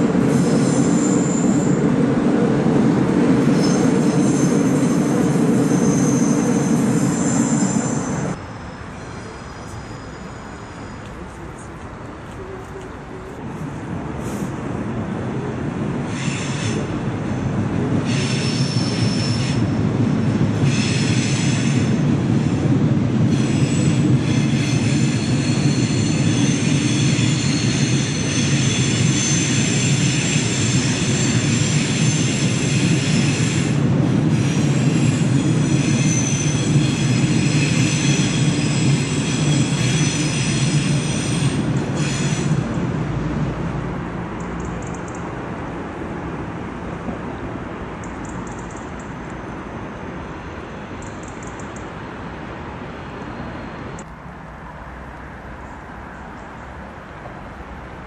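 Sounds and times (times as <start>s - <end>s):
train wheel squeal: 0.0s - 1.9s, 3.4s - 11.7s, 16.1s - 17.0s, 18.0s - 22.6s, 23.3s - 42.8s
train rumbling on bridge: 0.0s - 58.0s.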